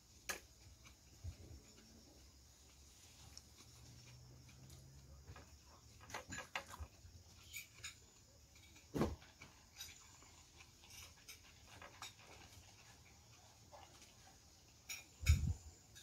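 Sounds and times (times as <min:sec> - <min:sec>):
thump: 0:08.9 - 0:09.2.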